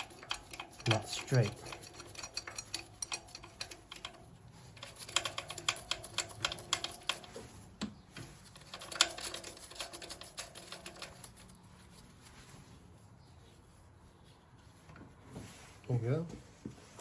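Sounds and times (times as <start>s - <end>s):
hand ratchet clicking: 0.0s - 7.4s, 8.4s - 11.5s.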